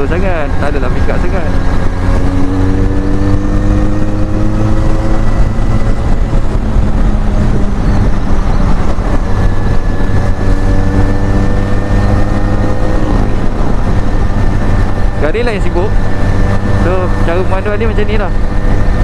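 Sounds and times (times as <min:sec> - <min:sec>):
motorcycle engine running: 0:00.0 - 0:19.0
steady low rush: 0:00.0 - 0:19.0.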